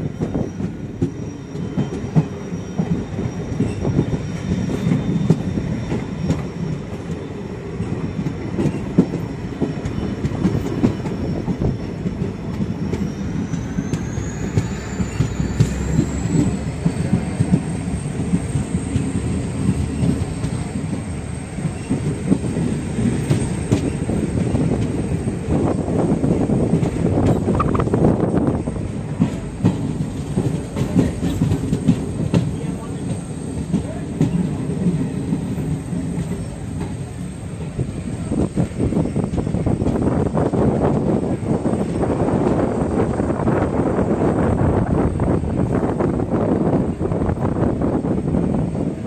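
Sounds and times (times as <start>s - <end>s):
train rumbling on track: 0.0s - 49.0s
wheels clicking over rail joints: 29.2s - 41.2s.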